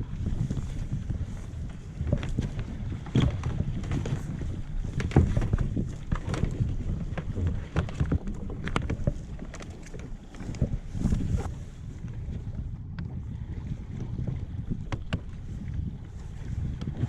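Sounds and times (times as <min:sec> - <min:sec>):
wind rumbling on microphone: 0:00.0 - 0:17.0
knocks and clunks of gear: 0:02.0 - 0:11.5, 0:14.8 - 0:15.4.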